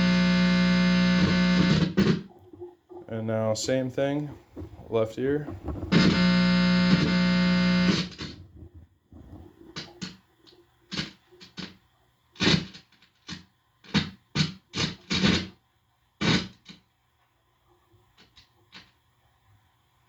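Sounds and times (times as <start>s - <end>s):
crackling scratchy bursts: 0.0s - 2.3s, 3.5s - 10.2s, 12.4s - 15.6s, 16.2s - 16.7s
guitar amplifier buzz: 0.0s - 2.3s, 5.9s - 8.4s, 13.9s - 15.6s, 16.2s - 16.6s.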